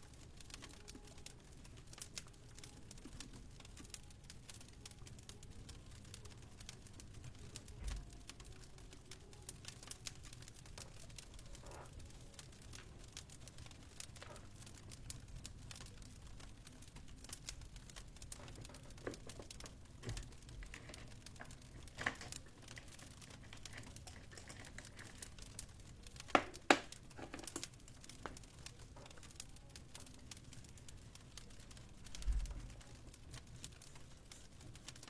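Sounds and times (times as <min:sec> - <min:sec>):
fireplace fire crackling: 0:00.0 - 0:35.0
faint low rumble: 0:31.0 - 0:33.6.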